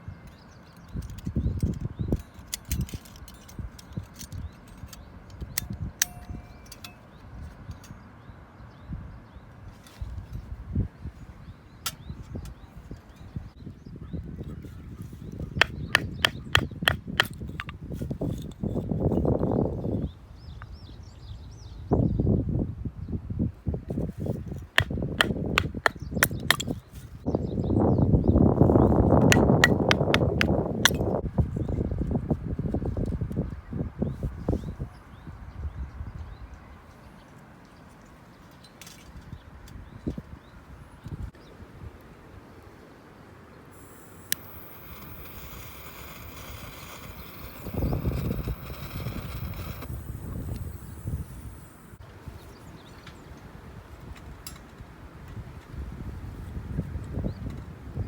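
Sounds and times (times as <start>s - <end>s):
sharp metal clink ringing: 6.0s - 7.2s.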